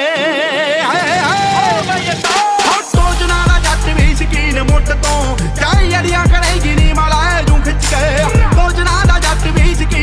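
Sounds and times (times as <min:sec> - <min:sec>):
person singing: 0:00.0 - 0:10.0
heavy bass beat: 0:02.3 - 0:10.0.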